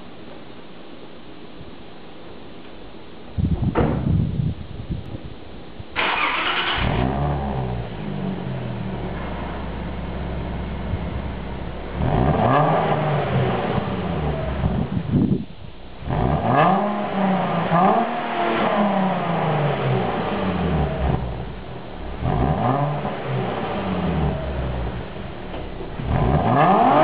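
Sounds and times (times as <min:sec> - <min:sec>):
car engine revving: 0:06.0 - 0:15.2, 0:15.9 - 0:27.0.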